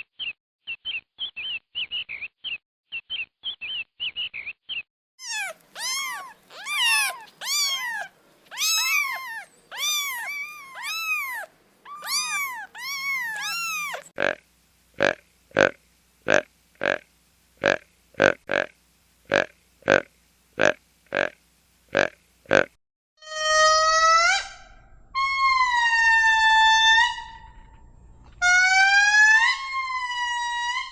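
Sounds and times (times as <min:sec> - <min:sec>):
small bird chirping: 0:00.0 - 0:14.1
cat meowing: 0:05.2 - 0:14.1.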